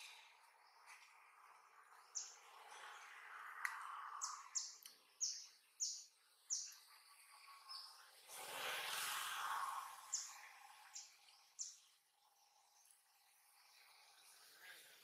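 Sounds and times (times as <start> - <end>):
bird chirping: 1.9 - 2.4, 4.2 - 8.1, 10.1 - 13.0.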